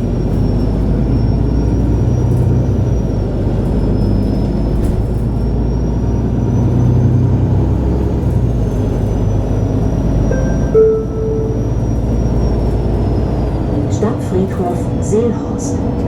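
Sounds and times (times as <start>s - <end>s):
bus engine and rolling rumble: 0.0s - 16.0s
short clear tone: 10.3s - 12.4s.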